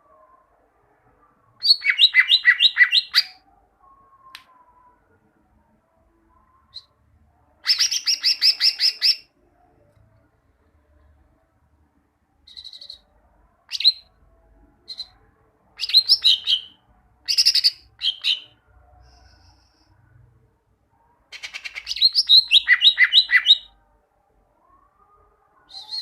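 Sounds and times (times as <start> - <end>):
bird singing: 1.6 - 4.9, 7.6 - 9.3, 12.4 - 14.1, 14.8 - 15.2, 15.8 - 18.6, 21.3 - 23.8, 25.6 - 26.0.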